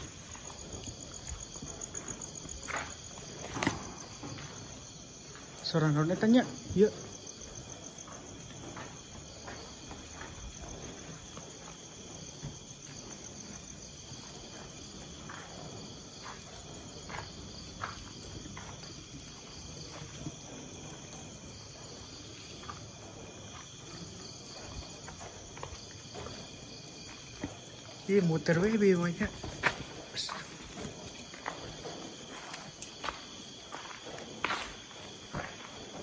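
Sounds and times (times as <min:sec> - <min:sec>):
crickets chirring: 0:00.0 - 0:36.0
faint footsteps or taps: 0:29.3 - 0:36.0.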